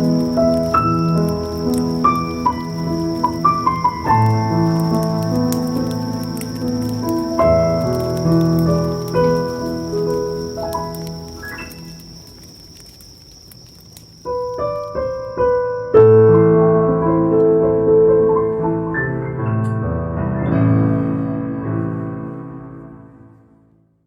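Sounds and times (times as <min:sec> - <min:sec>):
piano chords: 0:00.0 - 0:13.0, 0:14.2 - 0:24.0.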